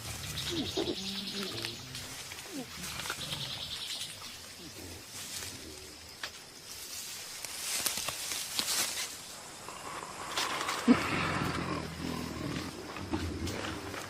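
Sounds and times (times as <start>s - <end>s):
gorillas grunting: 0.0s - 6.0s, 9.6s - 14.0s
high chirr of forest insects: 0.0s - 14.0s.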